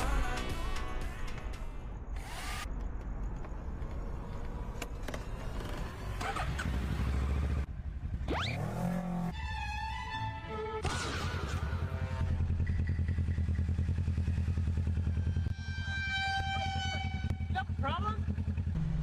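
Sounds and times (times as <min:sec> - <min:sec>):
motorcycle engine rumble: 0:02.7 - 0:09.3, 0:11.6 - 0:19.0.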